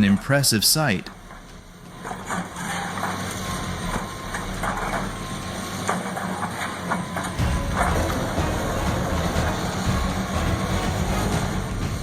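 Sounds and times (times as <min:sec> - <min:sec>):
heavy diesel engine running: 0:01.1 - 0:12.0.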